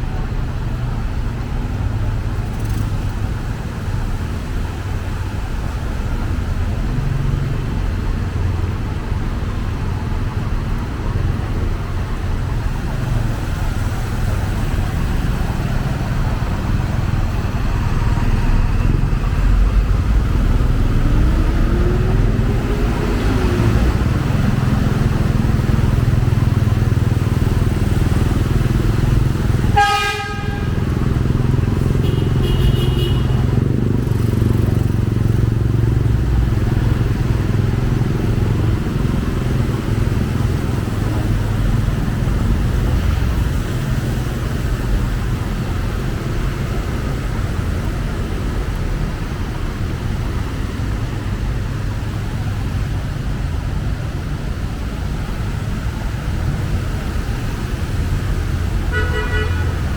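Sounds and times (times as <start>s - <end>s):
heavy road traffic rumble: 0.0s - 59.9s
vehicle horn toot: 29.8s - 30.9s, 31.9s - 33.5s, 58.9s - 59.9s.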